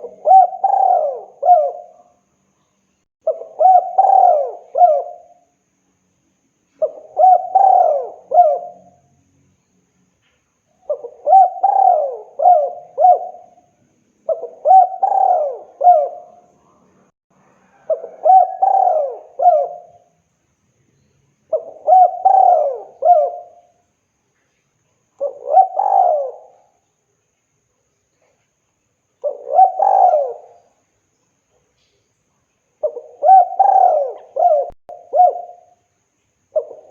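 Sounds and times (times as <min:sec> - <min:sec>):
dove cooing: 0:00.0 - 0:02.1, 0:03.2 - 0:05.4, 0:06.8 - 0:09.0, 0:10.9 - 0:13.7, 0:14.3 - 0:16.5, 0:17.7 - 0:20.1, 0:21.5 - 0:23.7, 0:25.2 - 0:26.8, 0:29.2 - 0:30.7, 0:32.8 - 0:35.8, 0:36.6 - 0:36.9.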